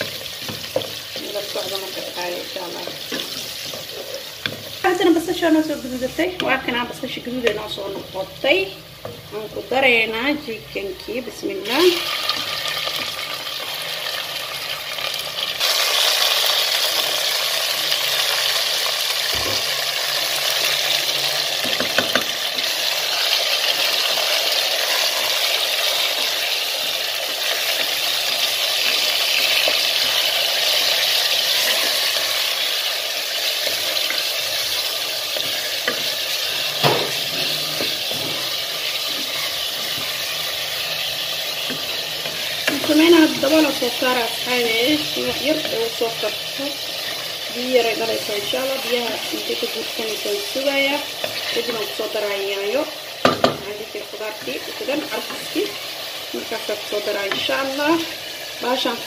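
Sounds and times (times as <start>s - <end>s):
wooden spoon stirring: 0.0s - 5.1s, 26.9s - 44.2s
chicken sizzling in hot oil: 0.0s - 59.0s.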